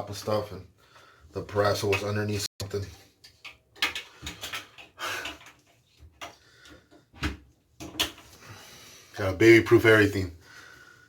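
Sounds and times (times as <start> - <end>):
containers knocking and clattering: 1.8 - 6.4.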